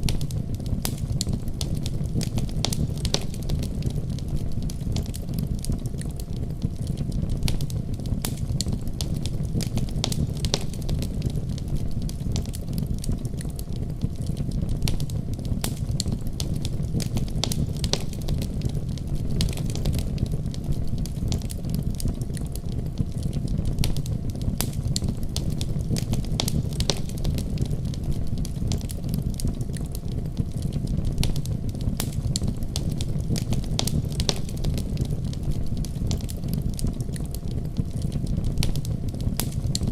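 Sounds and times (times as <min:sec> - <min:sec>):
wood fire crackling and popping: 0:00.0 - 0:39.9
deep rumble of snowstorm: 0:23.0 - 0:37.1.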